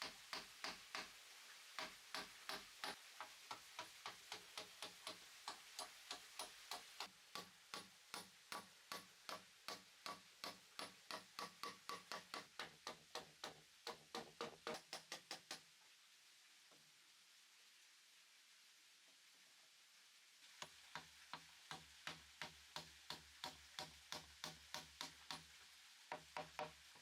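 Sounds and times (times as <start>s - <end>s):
hammer striking wood: 0.0s - 1.1s, 1.8s - 15.6s, 21.0s - 25.4s, 26.1s - 26.8s.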